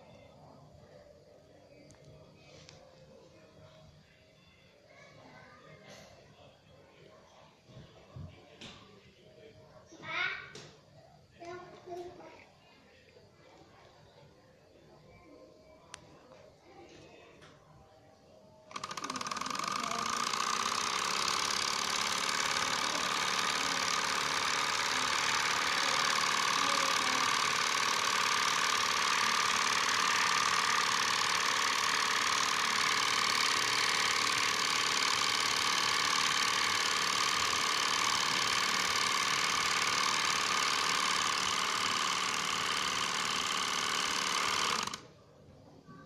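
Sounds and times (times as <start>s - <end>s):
stirling engine whirring: 18.7s - 45.1s.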